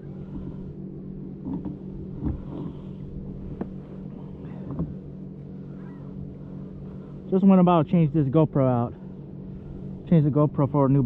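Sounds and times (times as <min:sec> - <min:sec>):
boat motor humming: 0:00.0 - 0:11.0
faint knocks in boat: 0:01.4 - 0:07.0.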